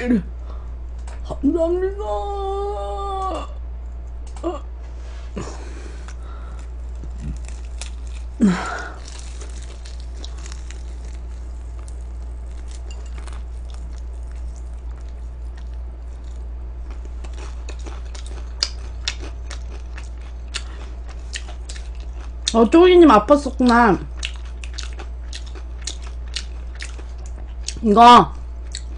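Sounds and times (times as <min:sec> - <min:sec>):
steady low hum: 0:00.0 - 0:28.9
chewing crispy fried chicken: 0:06.0 - 0:28.9.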